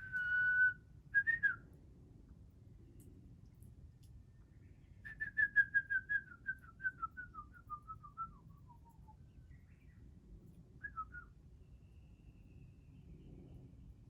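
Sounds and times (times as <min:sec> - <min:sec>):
bird whistled call: 0:00.0 - 0:01.5.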